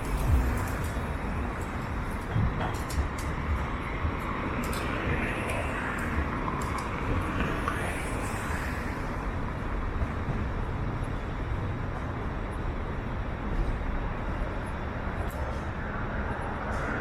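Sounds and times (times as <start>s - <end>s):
cars passing on a street: 0.0s - 17.0s.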